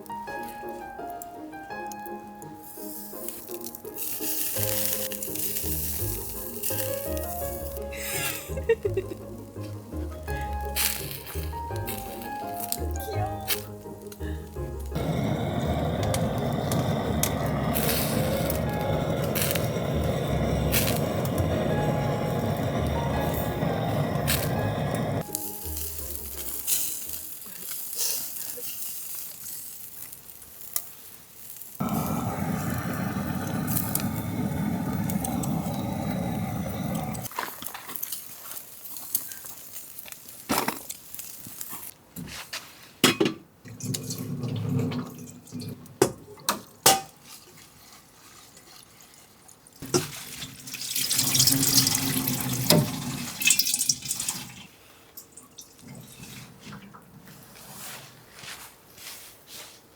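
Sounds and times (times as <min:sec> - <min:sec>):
tap water running into sink: 0:49.8 - 0:54.7.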